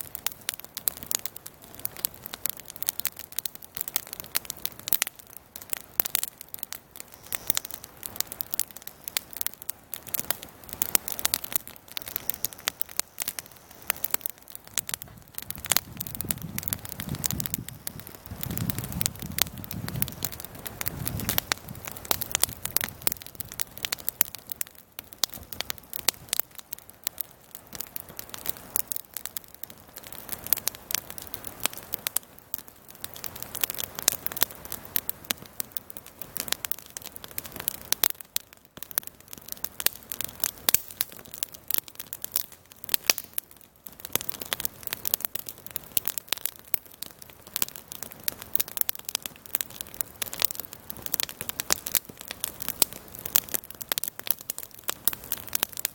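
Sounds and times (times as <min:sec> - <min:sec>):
campfire crackling: 0:00.0 - 0:55.9.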